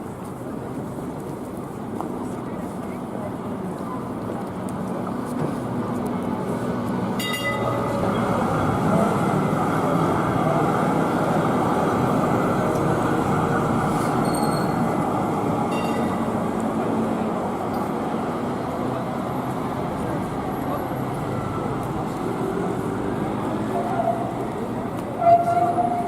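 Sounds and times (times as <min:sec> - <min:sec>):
tram rumbling on rails: 0:00.0 - 0:26.0.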